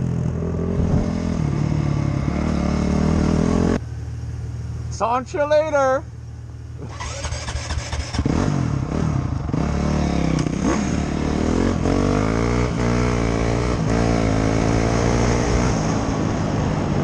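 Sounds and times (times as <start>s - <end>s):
dirt bike engine revving: 0.0s - 3.8s, 6.8s - 16.2s.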